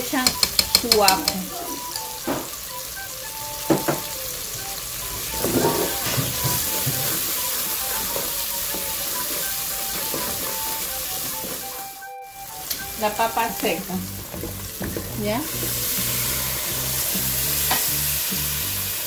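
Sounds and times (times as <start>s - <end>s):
wooden spoon stirring in pot: 0.0s - 2.6s, 12.9s - 17.1s
onion and garlic sizzling in oil: 0.0s - 19.0s.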